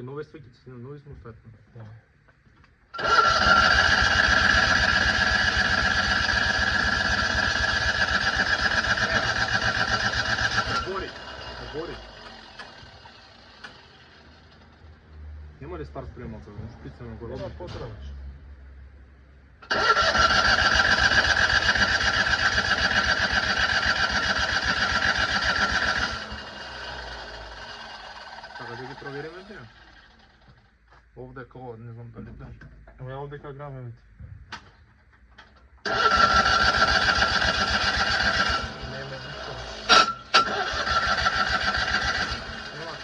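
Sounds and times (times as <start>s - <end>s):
engine cranking on starter: 3.0s - 14.8s, 19.6s - 30.7s, 35.8s - 43.0s.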